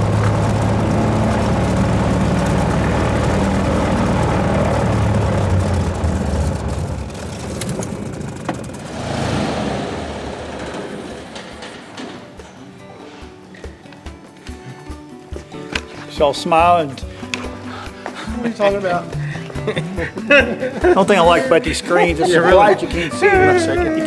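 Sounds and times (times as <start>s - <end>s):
propeller plane engine droning: 0.0s - 12.6s.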